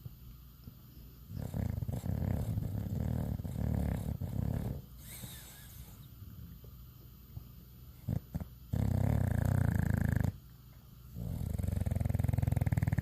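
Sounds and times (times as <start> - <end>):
dog snoring: 1.3 - 6.5, 8.0 - 10.4, 11.2 - 13.0.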